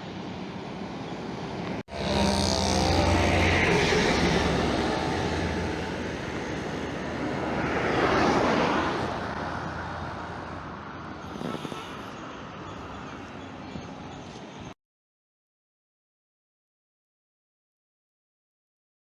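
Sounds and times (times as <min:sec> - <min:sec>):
vehicle passing by: 0:01.9 - 0:12.2.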